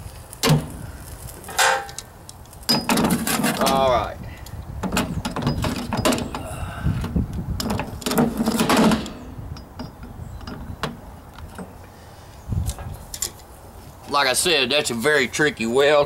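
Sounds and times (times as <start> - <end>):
clattering handling noise: 1.4 - 2.1, 2.7 - 3.8, 4.8 - 6.4, 7.0 - 11.8.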